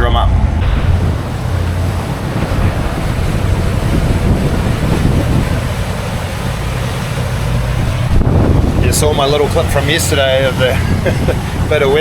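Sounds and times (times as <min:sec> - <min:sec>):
boat engine running: 0:00.0 - 0:12.0
water noise: 0:00.0 - 0:12.0
wind buffeting microphone: 0:00.0 - 0:12.0.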